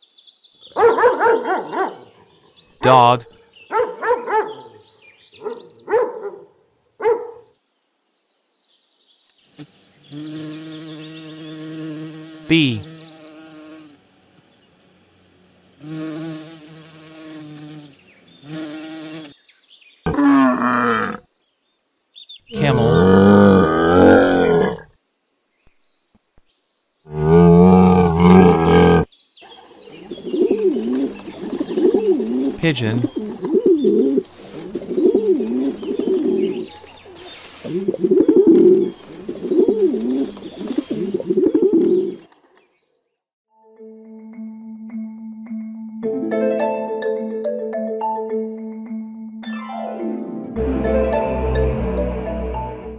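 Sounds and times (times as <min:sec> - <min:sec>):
honeybee buzzing: 0:10.2 - 0:14.2, 0:14.8 - 0:19.3
pigeon cooing: 0:29.9 - 0:42.2.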